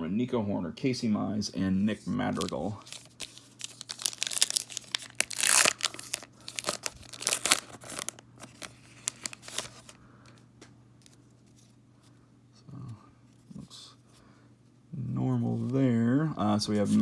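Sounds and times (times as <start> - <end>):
wrapper tearing and crinkling: 2.2 - 10.0.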